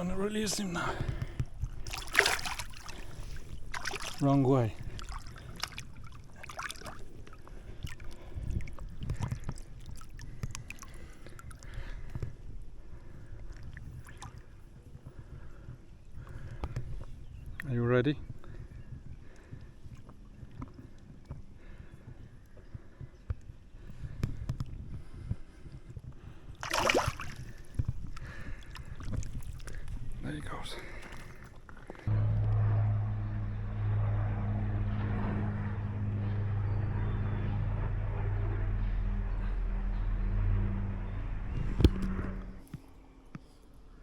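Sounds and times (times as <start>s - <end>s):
knocks and rustles in a boat: 0.9s - 17.6s
water lapping around a kayak: 1.0s - 17.6s, 18.3s - 32.1s
fish splashing into water: 1.8s - 4.2s, 26.6s - 27.8s.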